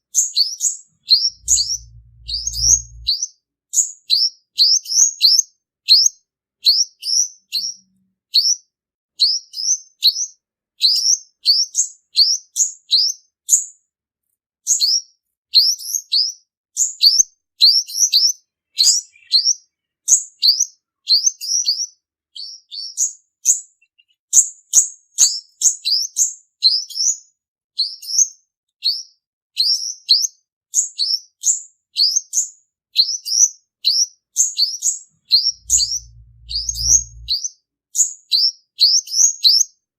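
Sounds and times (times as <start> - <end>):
bird high rising chirps: 1.0 - 3.2, 18.7 - 20.1, 34.6 - 37.5.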